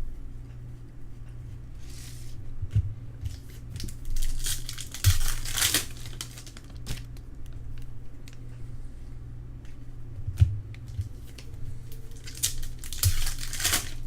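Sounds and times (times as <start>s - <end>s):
wrapper crinkling and tearing: 3.3s - 7.6s, 11.2s - 14.0s.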